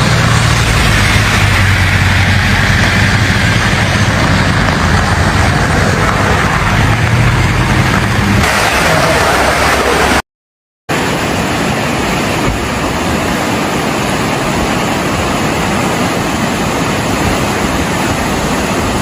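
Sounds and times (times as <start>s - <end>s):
floodwater rushing: 0.0s - 10.2s, 10.9s - 19.0s.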